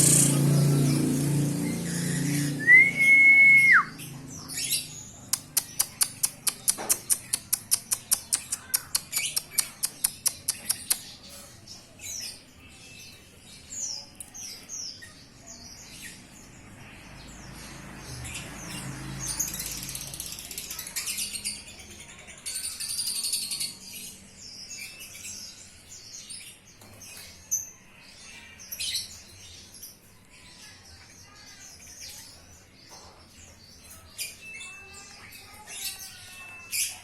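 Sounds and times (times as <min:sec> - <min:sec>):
whistled tone: 0:02.1 - 0:04.0.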